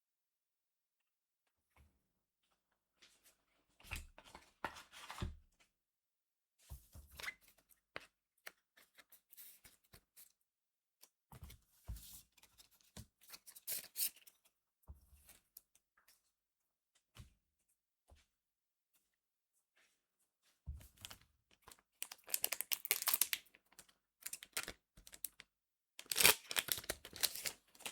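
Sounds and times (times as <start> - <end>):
cards rustling and slapping: 26.0 - 27.9.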